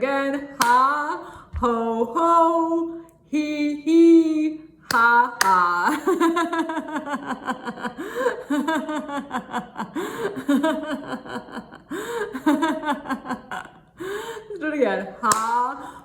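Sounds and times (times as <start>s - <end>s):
woman laughing rhythmically: 4.9s - 16.0s.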